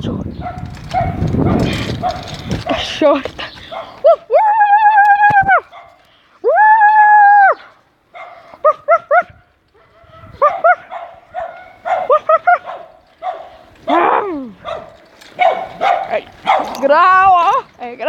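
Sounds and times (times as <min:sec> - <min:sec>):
small dog barking: 0:05.7 - 0:06.0, 0:08.1 - 0:09.2, 0:09.8 - 0:16.9.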